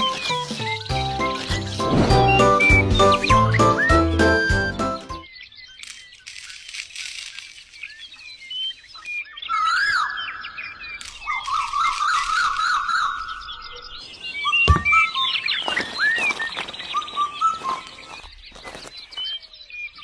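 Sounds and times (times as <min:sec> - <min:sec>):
birds chirping: 0:00.0 - 0:20.0
warbling whistled bird calls: 0:07.2 - 0:20.0
thump: 0:14.7 - 0:15.0.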